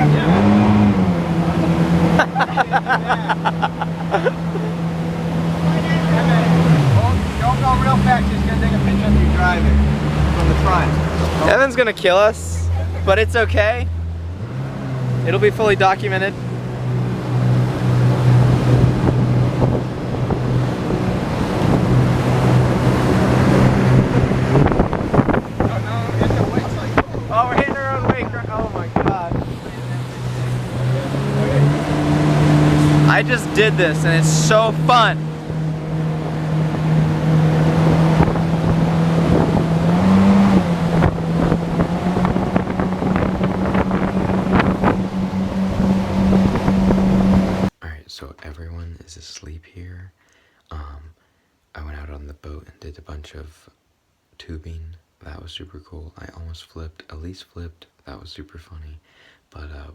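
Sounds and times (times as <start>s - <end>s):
hull rushing through water: 0.0s - 47.7s
motorboat engine droning: 0.0s - 47.7s
wind buffeting microphone: 16.4s - 33.1s, 35.2s - 47.7s.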